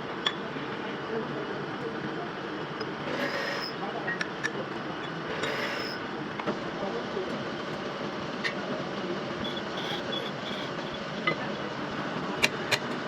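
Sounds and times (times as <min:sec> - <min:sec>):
metal lathe running: 0:02.3 - 0:13.0.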